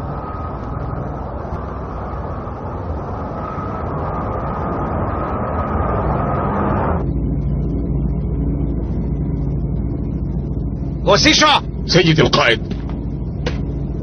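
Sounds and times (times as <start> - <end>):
low steady hum: 0.0 - 14.0
spaceship engine rumble: 0.0 - 14.0.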